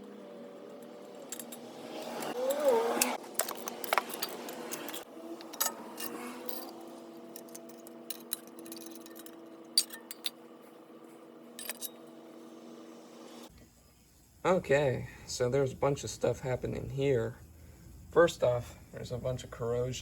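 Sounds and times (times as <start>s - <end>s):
metal tools clinking: 0.7s - 10.4s, 11.5s - 12.2s
faint steady hum: 4.2s - 20.0s.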